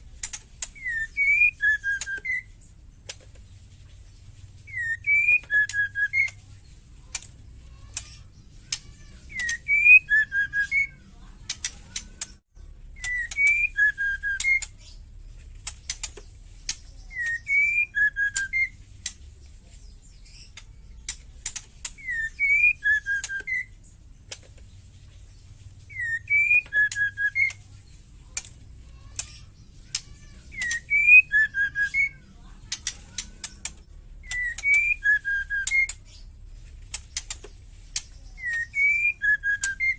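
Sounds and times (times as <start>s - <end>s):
bird whistled call: 0.8s - 2.6s, 4.7s - 6.4s, 9.3s - 11.0s, 13.0s - 14.7s, 17.0s - 18.8s, 22.0s - 23.8s, 25.9s - 27.6s, 30.0s - 32.2s, 34.2s - 36.0s, 38.3s - 39.9s.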